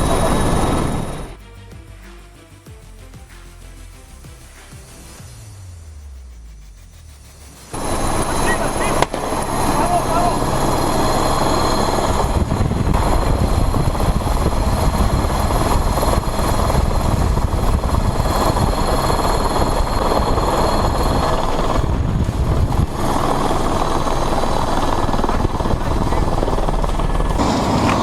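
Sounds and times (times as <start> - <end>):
helicopter rotor and engine: 0.0 - 1.4, 7.1 - 28.0.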